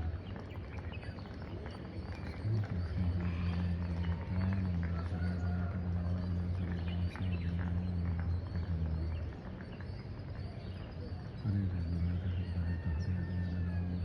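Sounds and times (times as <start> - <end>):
birds chirping: 0.0 - 14.0
loud low hum: 2.3 - 9.5.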